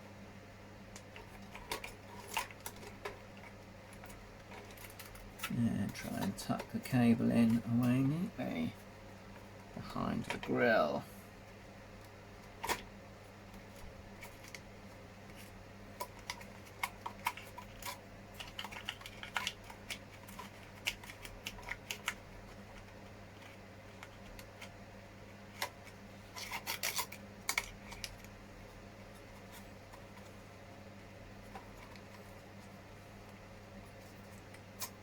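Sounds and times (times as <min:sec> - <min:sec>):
plastic parts clicking and rubbing: 0:01.0 - 0:08.2, 0:12.4 - 0:12.9, 0:15.3 - 0:24.8, 0:25.5 - 0:28.4, 0:31.4 - 0:35.0.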